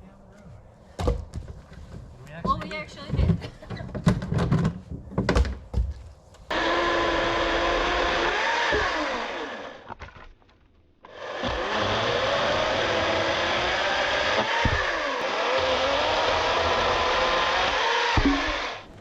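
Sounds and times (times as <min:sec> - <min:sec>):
small electric motor whirring: 0:11.1 - 0:18.9
sharp knocks: 0:14.3 - 0:15.2, 0:18.1 - 0:18.9.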